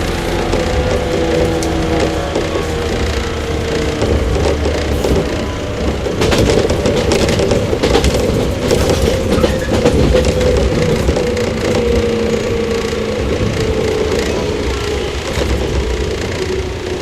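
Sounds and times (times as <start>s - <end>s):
train motor whine: 0.0s - 17.0s
wheels clicking over rail joints: 0.0s - 17.0s.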